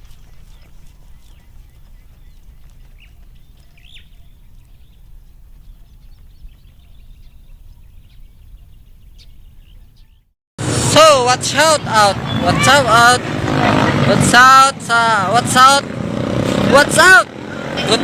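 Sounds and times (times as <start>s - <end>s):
steady low rumble: 0.0s - 10.0s
small birds chirping: 0.0s - 10.3s.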